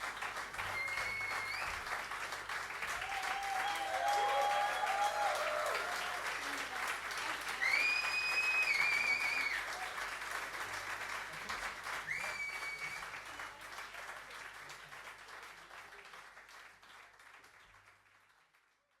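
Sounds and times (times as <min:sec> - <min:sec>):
audience applauding: 0:00.0 - 0:19.0
loud whistles from crowd: 0:00.7 - 0:01.8, 0:07.6 - 0:09.6, 0:12.1 - 0:13.1.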